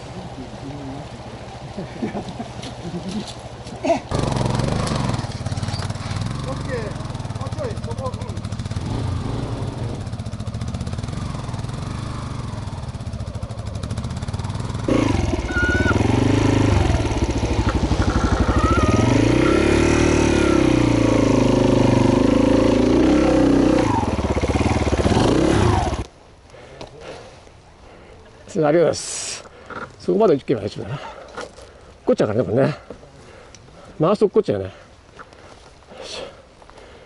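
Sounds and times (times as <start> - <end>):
motorcycle engine revving: 3.0 - 26.1.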